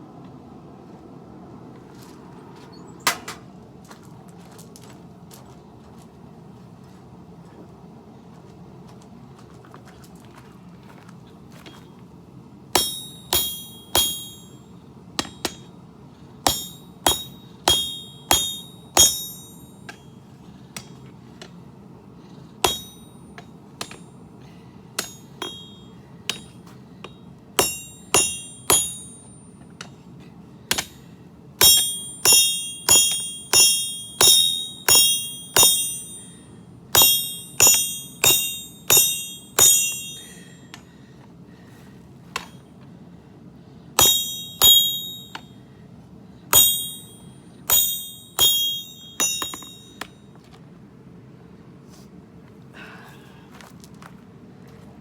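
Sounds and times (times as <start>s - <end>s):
hammer striking steel on anvil: 12.7s - 15.8s, 16.4s - 20.2s, 22.6s - 24.2s, 25.0s - 30.0s, 30.7s - 40.9s, 42.4s - 42.7s, 44.0s - 45.6s, 46.5s - 50.2s.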